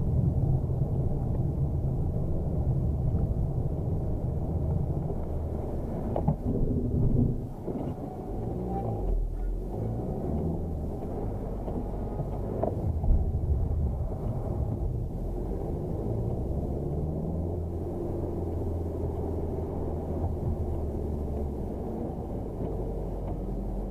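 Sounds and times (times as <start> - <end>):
car engine revving: 5.1 - 23.9.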